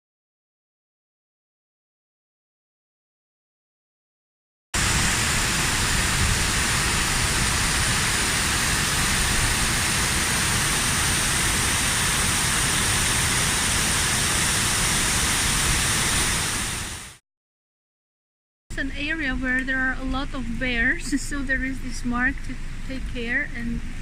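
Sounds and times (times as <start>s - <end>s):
waterfall rushing: 4.8s - 17.2s.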